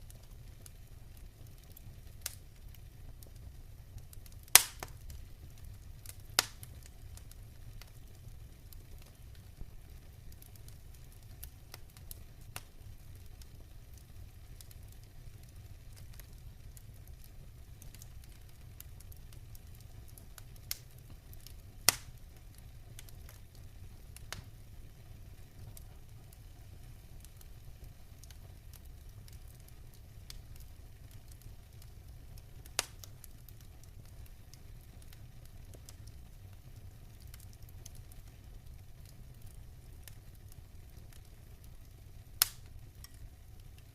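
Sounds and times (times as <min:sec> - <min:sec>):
wood fire crackling: 0:00.0 - 0:43.9
sharp fire pops: 0:00.2 - 0:15.0, 0:15.6 - 0:23.6, 0:28.2 - 0:36.2, 0:42.3 - 0:43.8.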